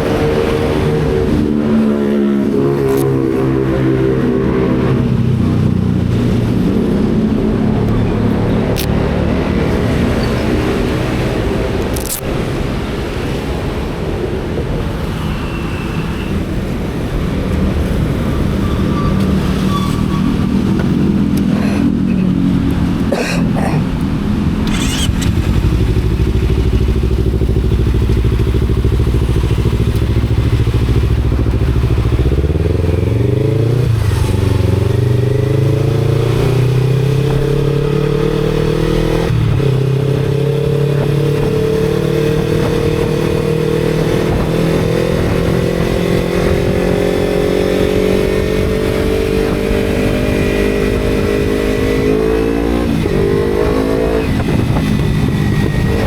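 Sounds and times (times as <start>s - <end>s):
motorcycle engine accelerating: 23.9s - 56.0s.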